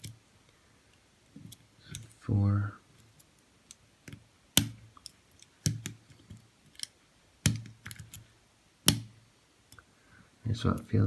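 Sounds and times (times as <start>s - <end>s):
lock pick clicking in padlock: 8.9s - 9.1s.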